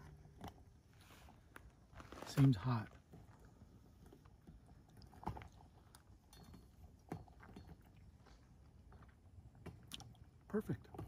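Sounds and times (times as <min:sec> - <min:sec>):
soft mouth sounds chewing: 0:03.1 - 0:10.4.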